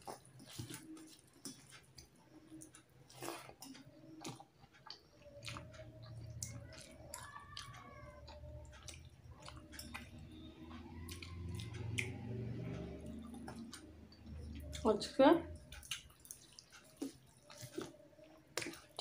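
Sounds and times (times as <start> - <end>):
wet chewing and lip smacks: 0.0 - 14.9, 15.5 - 19.0
faint whining tone: 0.0 - 19.0.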